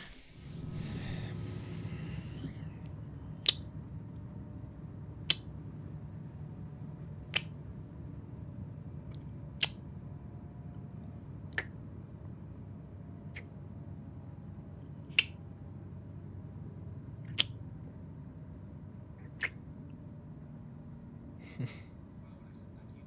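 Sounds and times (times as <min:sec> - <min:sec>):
train interior rumble: 0:00.0 - 0:23.0
sharp clicks: 0:02.2 - 0:04.3, 0:07.0 - 0:07.7, 0:11.5 - 0:11.8, 0:17.3 - 0:17.6, 0:19.3 - 0:19.6.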